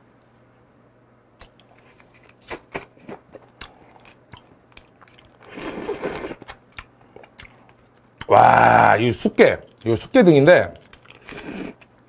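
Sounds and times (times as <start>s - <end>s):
person chewing crunchy food: 1.4s - 8.9s, 10.7s - 12.0s.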